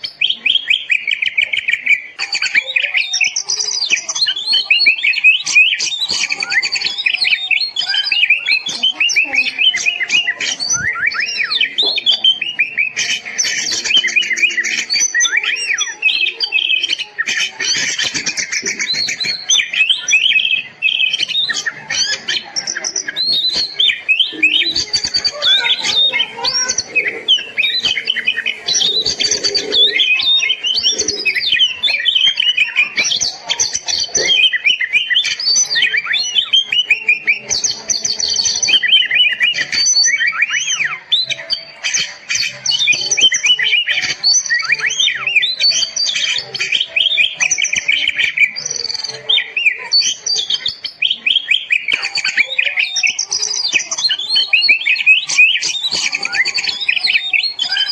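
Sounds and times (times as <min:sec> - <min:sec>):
bird singing whistles and trills: 0:00.0 - 0:57.9.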